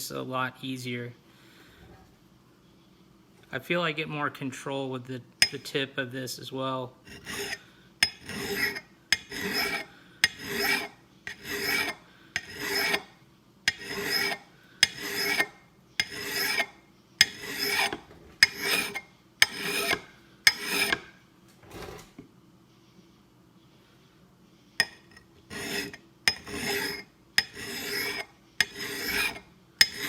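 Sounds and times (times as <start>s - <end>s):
hand file rasping on steel: 7.1s - 13.1s, 13.7s - 21.1s, 25.5s - 30.0s.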